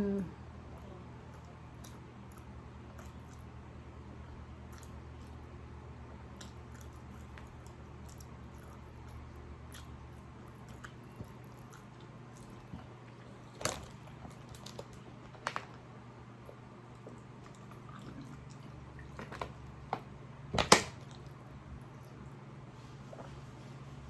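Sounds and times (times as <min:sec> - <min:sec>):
steady low hum: 0:00.0 - 0:24.0
chewing with clicks and smacks: 0:00.7 - 0:03.7, 0:04.6 - 0:05.6, 0:06.3 - 0:15.8, 0:16.4 - 0:20.0.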